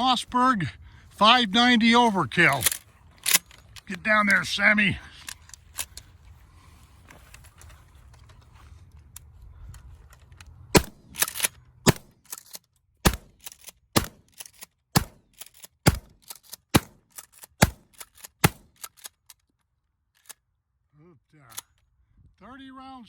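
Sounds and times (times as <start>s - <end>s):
shotgun shots: 10.7s - 11.2s, 11.9s - 12.1s, 13.0s - 13.4s, 14.0s - 14.2s, 15.0s - 15.2s, 15.8s - 17.0s, 17.6s - 18.7s.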